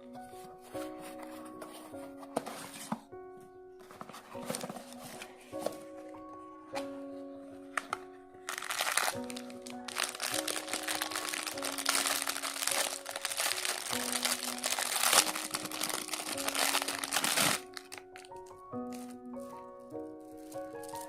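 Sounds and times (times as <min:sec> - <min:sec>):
background music with simple melody: 0:00.0 - 0:21.0
packaging crinkling: 0:03.9 - 0:05.8, 0:07.8 - 0:21.0.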